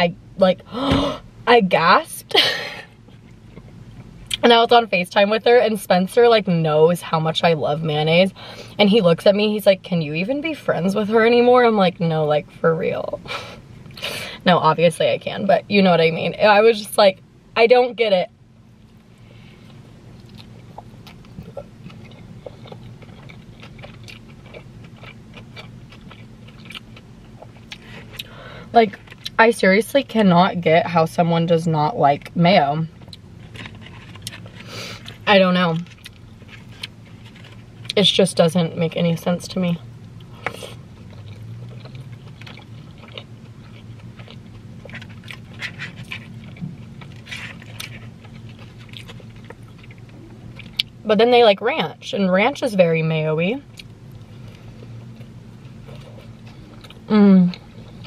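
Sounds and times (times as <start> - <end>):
steady low hum: 0.0 - 58.0
person chewing food: 18.8 - 28.3, 29.0 - 29.4, 32.9 - 35.2, 35.8 - 38.0, 40.2 - 51.0, 53.7 - 58.0.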